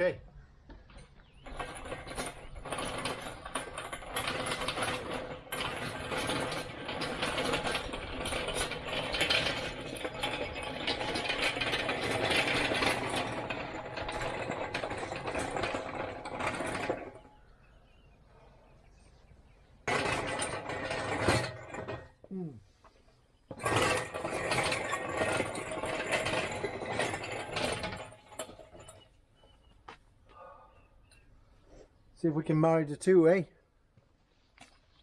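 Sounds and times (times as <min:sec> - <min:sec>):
rough rattling mechanical noise: 0:01.0 - 0:17.4, 0:19.8 - 0:22.3, 0:23.5 - 0:29.1.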